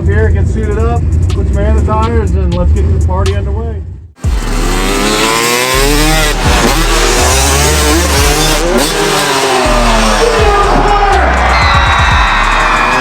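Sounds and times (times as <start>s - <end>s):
heavy low rumble: 0.0s - 5.0s
truck engines revving: 0.0s - 13.0s.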